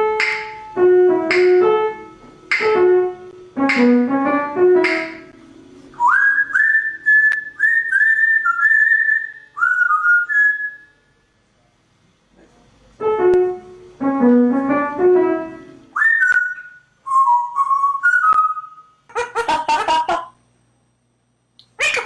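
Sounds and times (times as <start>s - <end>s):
piano-like melody: 0.0s - 6.0s, 13.0s - 15.9s
person whistling short notes: 6.0s - 10.9s, 16.0s - 18.9s.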